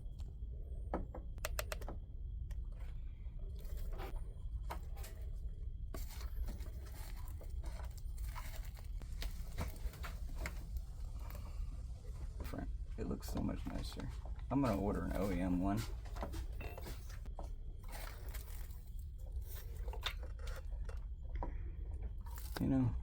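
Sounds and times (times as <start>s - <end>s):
screwdriver clicks: 1.4s - 1.9s
scraping and crinkling: 2.7s - 12.6s, 13.6s - 23.0s.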